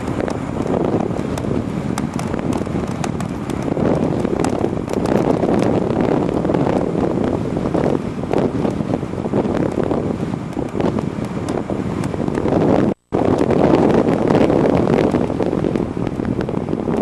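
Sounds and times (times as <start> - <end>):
clicks and knocks from bike: 0.0 - 5.8
wind buffeting microphone: 0.0 - 17.0.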